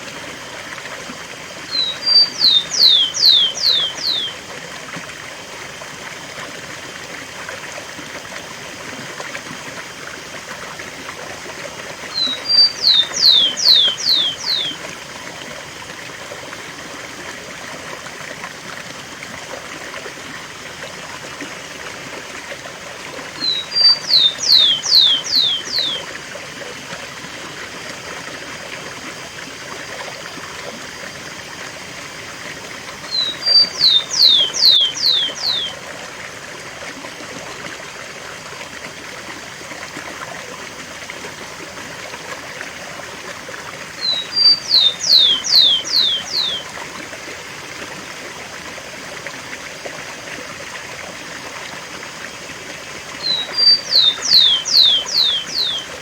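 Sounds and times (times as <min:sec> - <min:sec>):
sparrow singing: 0:01.7 - 0:04.4, 0:12.1 - 0:14.8, 0:23.4 - 0:26.1, 0:33.1 - 0:35.8, 0:44.0 - 0:46.7, 0:53.2 - 0:56.0
waterfall rushing: 0:12.1 - 0:14.7, 0:23.4 - 0:26.0, 0:33.1 - 0:35.7, 0:44.0 - 0:46.6, 0:53.2 - 0:56.0.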